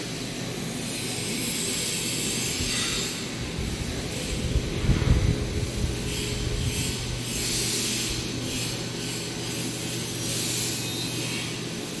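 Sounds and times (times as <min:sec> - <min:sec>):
low machine hum: 0:02.5 - 0:12.0.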